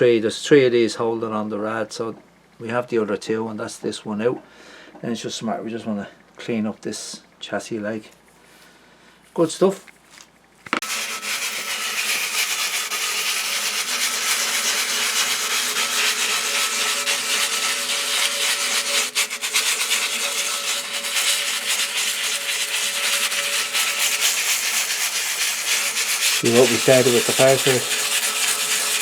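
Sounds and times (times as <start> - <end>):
abrasive rubbing on metal: 10.8 - 29.0.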